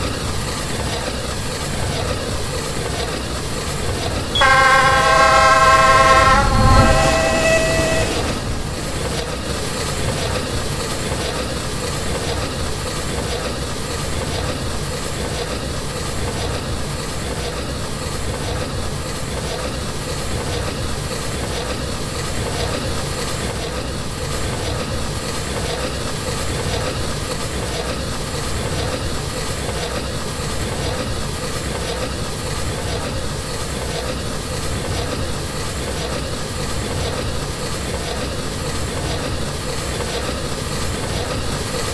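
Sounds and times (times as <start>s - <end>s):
train rumbling on rails: 0.1s - 23.6s.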